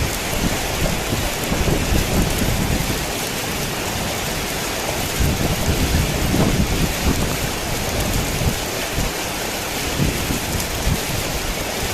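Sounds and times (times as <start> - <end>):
low rumble of thunder: 0.0 - 3.2
heavy rain falling: 0.0 - 11.9.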